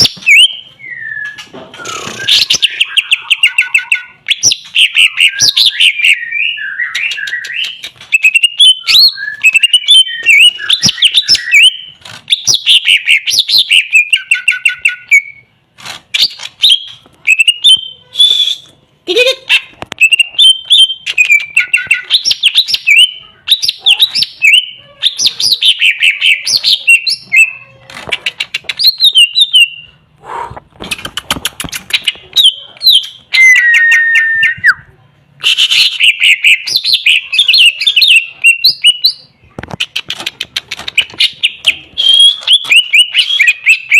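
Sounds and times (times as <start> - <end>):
bird singing whistles and chatter: 0.0 - 15.5, 16.2 - 18.7, 31.8 - 34.8, 35.4 - 43.9.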